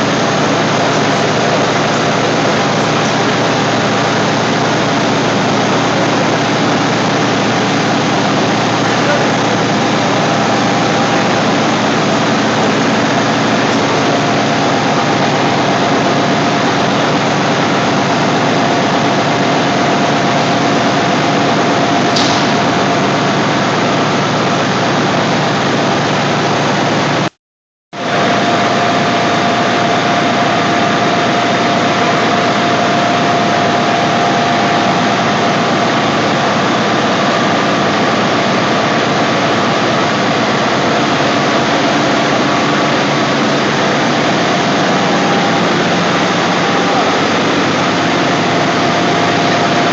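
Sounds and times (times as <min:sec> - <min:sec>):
constant machine whine: 0:00.0 - 0:27.3, 0:28.0 - 0:49.9
compressor machine din: 0:00.0 - 0:27.4, 0:28.0 - 0:49.9.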